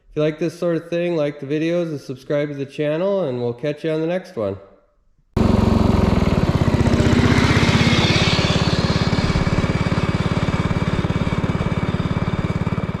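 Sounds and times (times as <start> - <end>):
small gasoline engine running: 5.4 - 13.0.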